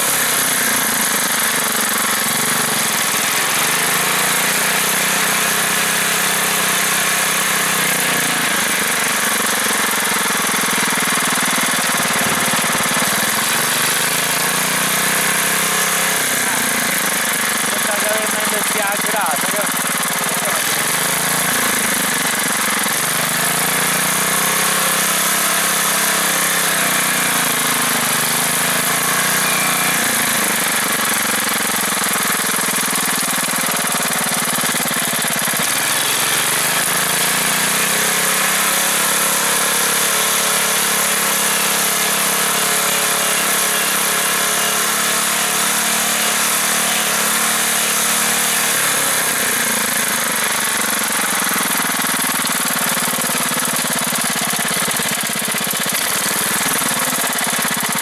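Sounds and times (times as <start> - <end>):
small tractor engine running: 0.0 - 58.0.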